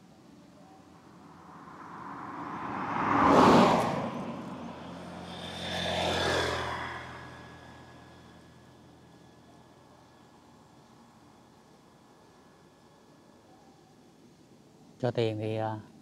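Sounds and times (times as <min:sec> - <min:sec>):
road vehicles passing close: 0:00.6 - 0:11.4.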